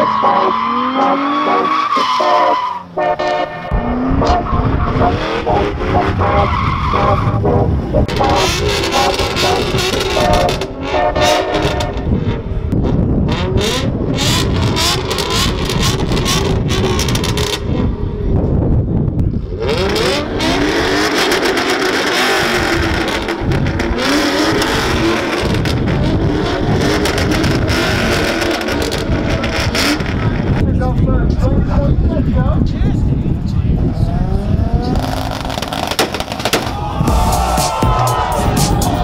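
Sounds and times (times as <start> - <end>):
tyres skidding and squealing: 0.0 - 12.6, 13.4 - 18.2, 19.5 - 31.5, 33.0 - 39.0
car engine revving: 0.0 - 18.6, 19.3 - 30.9, 33.3 - 39.0.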